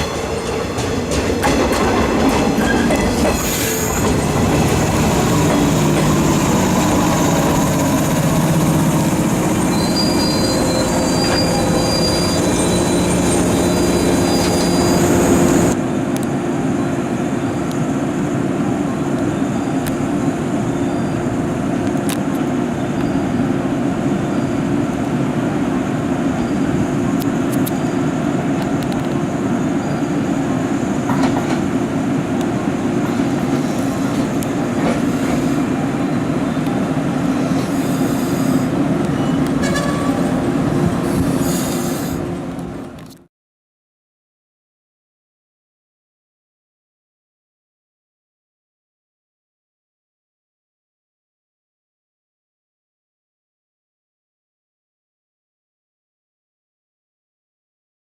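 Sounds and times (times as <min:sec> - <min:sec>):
electric train running: 0:00.0 - 0:15.8
thin wheel squeal: 0:09.6 - 0:15.7.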